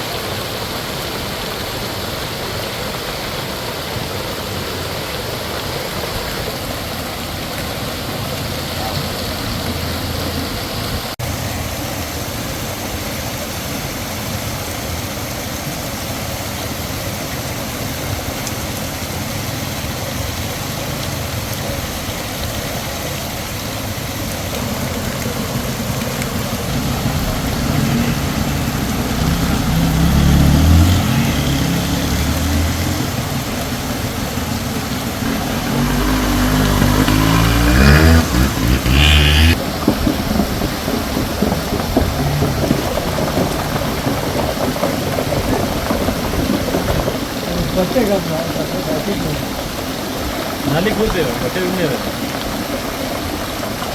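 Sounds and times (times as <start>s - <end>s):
heavy rain downpour: 0.0s - 53.9s
water running: 20.6s - 44.6s.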